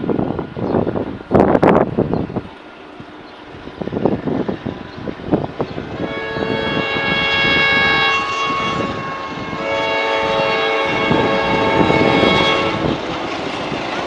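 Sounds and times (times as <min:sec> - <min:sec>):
locomotive rumbling past: 0:00.0 - 0:14.0
locomotive horn chord: 0:05.9 - 0:13.0.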